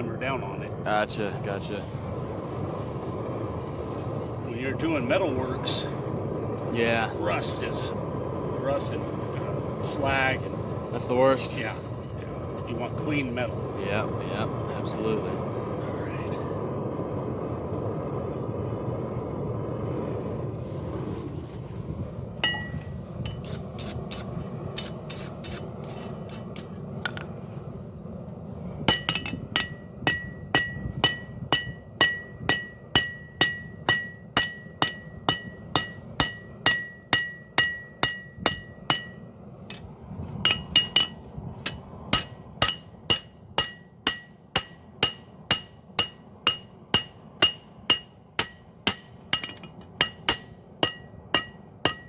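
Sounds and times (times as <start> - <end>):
low rushing noise: 0.0 - 25.8
hammer ringing on anvil: 22.4 - 22.8, 28.9 - 39.3, 40.5 - 52.0.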